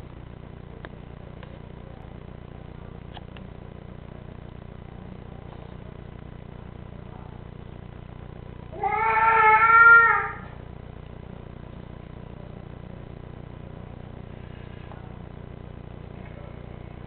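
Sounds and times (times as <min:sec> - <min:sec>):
low steady hum: 0:00.0 - 0:17.0
pet animal long cry: 0:08.7 - 0:10.6.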